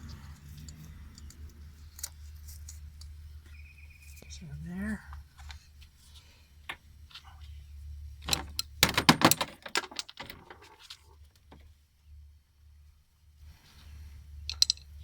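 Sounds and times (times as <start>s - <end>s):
steady low hum: 0.0s - 9.2s
metallic clicks of hand tools: 14.5s - 14.9s.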